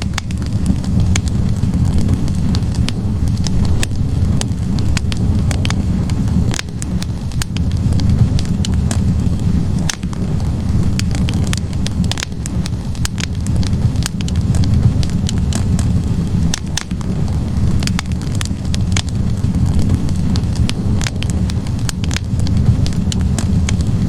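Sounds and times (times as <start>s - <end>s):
fire roaring: 0.0s - 24.0s
logs crackling and popping: 0.0s - 24.0s.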